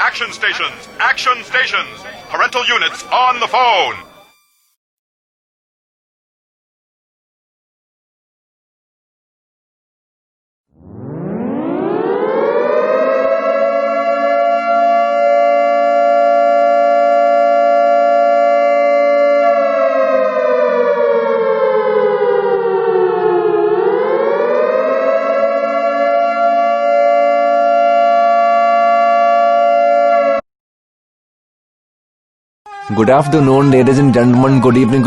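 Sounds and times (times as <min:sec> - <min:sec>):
air-raid siren wailing: 0:00.0 - 0:04.7, 0:10.7 - 0:30.4, 0:32.7 - 0:35.0.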